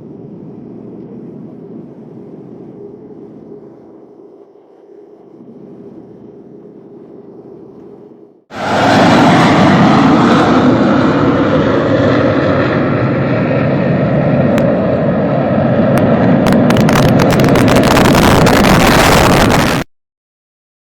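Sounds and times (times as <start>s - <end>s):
jet engine roaring: 0.0s - 19.9s
crackling: 16.5s - 19.9s.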